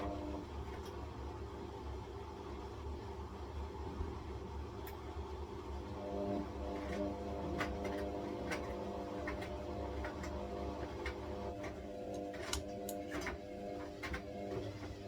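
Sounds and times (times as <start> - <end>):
washing machine motor hum: 0.0 - 15.0.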